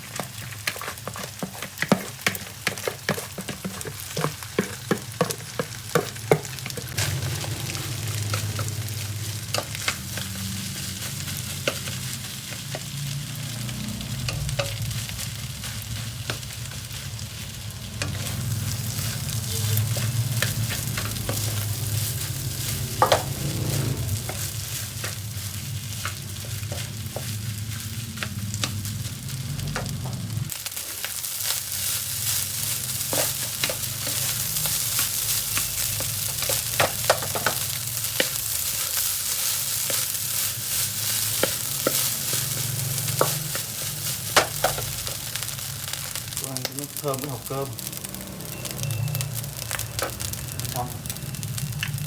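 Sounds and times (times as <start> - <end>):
spatula tapping and scraping pan: 0.0 - 13.4, 17.9 - 28.9, 32.9 - 45.5
rice sizzling in a pan: 0.0 - 52.0.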